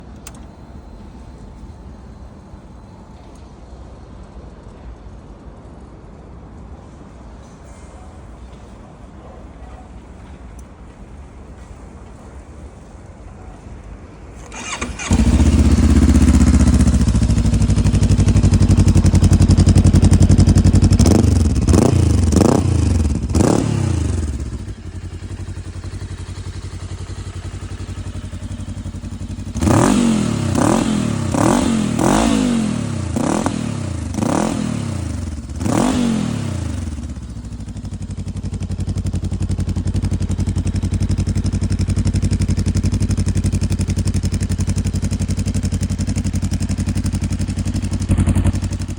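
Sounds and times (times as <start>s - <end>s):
motorcycle engine revving: 14.4s - 48.9s.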